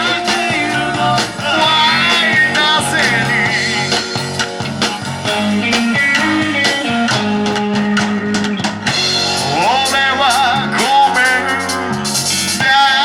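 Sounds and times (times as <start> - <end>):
person singing: 0.0 - 4.0, 5.4 - 7.7, 9.4 - 13.0
rock band playing live: 0.0 - 13.0.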